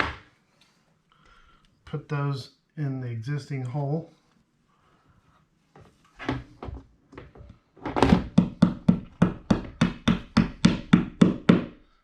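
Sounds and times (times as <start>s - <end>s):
hammer tapping wall anchor: 8.0s - 11.8s.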